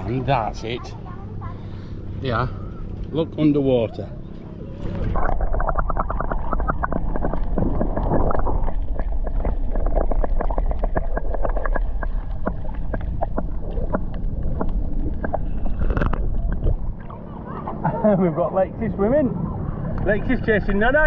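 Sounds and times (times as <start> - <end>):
muffled underwater rumble: 0.0 - 21.0
small crackles and pops: 5.6 - 16.8.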